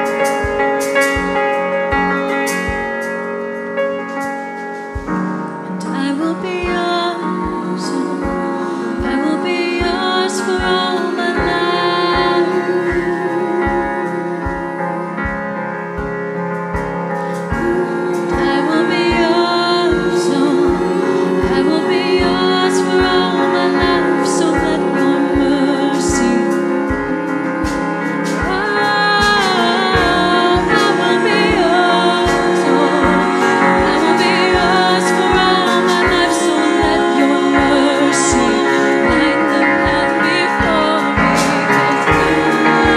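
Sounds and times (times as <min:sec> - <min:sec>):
band playing: 0:00.0 - 0:05.9, 0:06.8 - 0:42.9
woman singing lead: 0:04.8 - 0:42.9
choir singing: 0:17.6 - 0:42.9.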